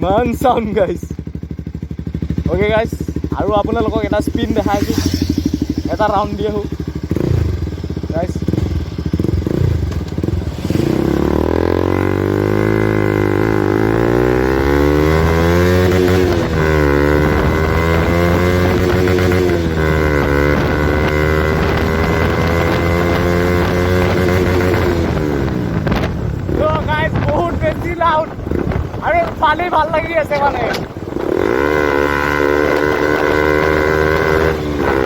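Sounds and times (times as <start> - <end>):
motorcycle engine shifting gears: 0.0 - 35.0.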